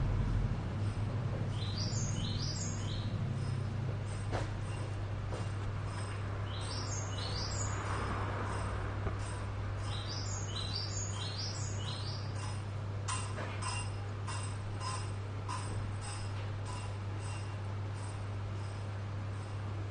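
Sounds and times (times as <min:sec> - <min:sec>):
steady low hum: 0:00.0 - 0:19.9
bird chirping: 0:01.5 - 0:03.7, 0:06.0 - 0:07.9, 0:09.8 - 0:12.5.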